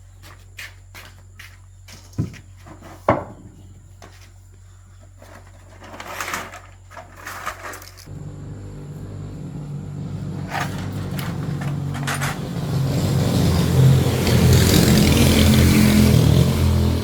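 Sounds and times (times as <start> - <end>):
scraping and rustling: 5.0 - 12.8
low hum: 8.1 - 17.0.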